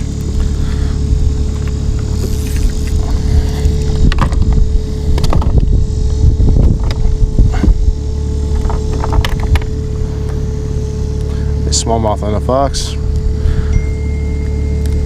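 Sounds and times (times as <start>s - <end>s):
wind on microphone: 0.0s - 10.2s
steady hum: 0.0s - 15.0s
knocks and clatter against kayak: 4.1s - 4.6s, 5.2s - 5.7s, 8.5s - 9.7s.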